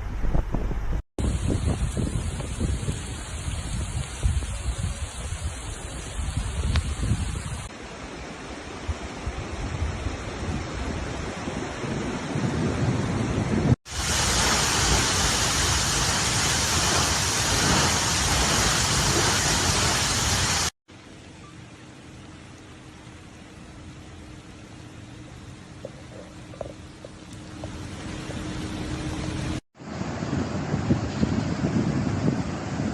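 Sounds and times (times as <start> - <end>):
gusty rumbling wind rush: 0.0 - 7.7, 9.2 - 20.7, 28.8 - 32.9
heavy rain hiss: 1.2 - 12.6, 13.9 - 30.8.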